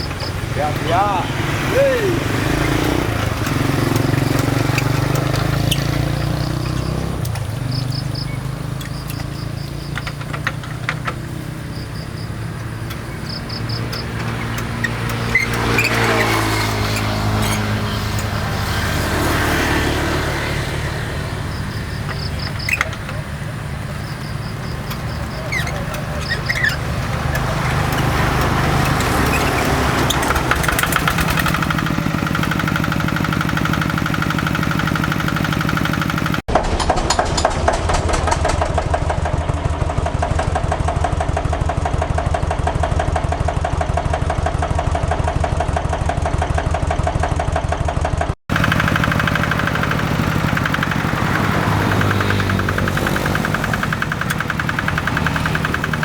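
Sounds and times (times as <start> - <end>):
single-cylinder diesel engine running: 0.0 - 56.0.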